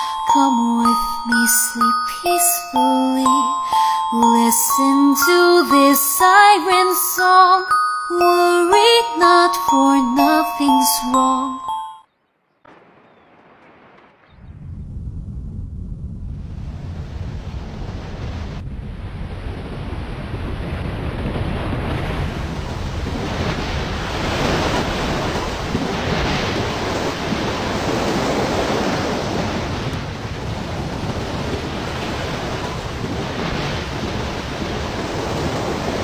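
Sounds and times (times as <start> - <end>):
wind buffeting the microphone: 14.3 - 36.0
sea surf crashing: 19.7 - 36.0.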